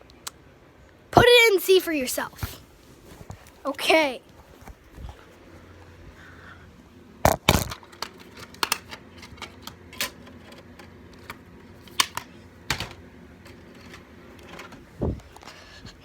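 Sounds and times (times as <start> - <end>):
clicks and knocks of tape handling: 7.2 - 16.0.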